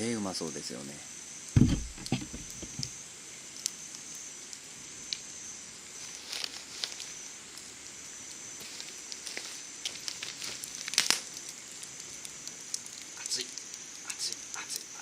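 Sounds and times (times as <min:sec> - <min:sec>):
insects droning: 0:00.0 - 0:15.0
dull thump: 0:01.6 - 0:02.9
campfire clicks and pops: 0:01.6 - 0:05.3, 0:06.1 - 0:15.0.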